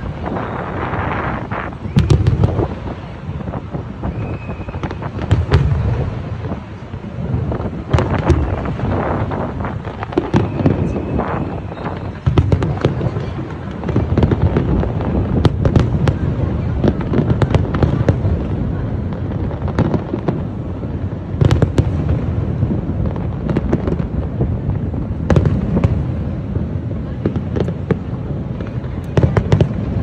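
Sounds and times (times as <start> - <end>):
fireworks booming: 0.0 - 30.0
fireworks crackling pops: 0.0 - 30.0
loud fireworks bangs: 0.0 - 30.0.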